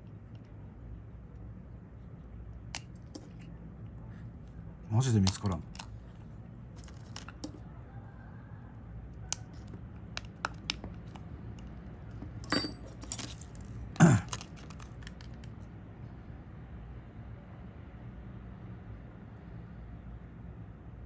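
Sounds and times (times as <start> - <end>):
small tools clicking on metal parts: 2.7 - 3.5, 5.0 - 7.6, 9.3 - 15.5.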